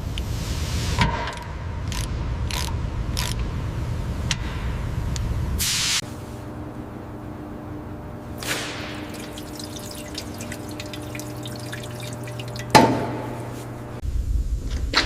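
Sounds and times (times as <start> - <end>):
liquid dripping: 8.4 - 14.0.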